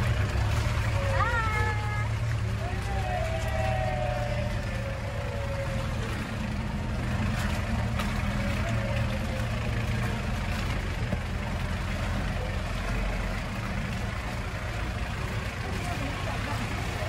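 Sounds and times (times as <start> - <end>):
engine running with low hum: 0.0 - 17.0.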